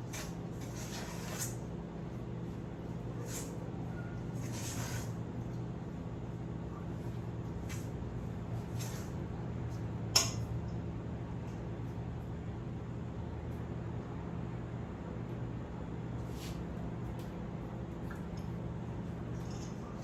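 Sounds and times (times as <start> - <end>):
short brushing sounds: 0.0 - 1.7
steady low hum: 0.0 - 20.0.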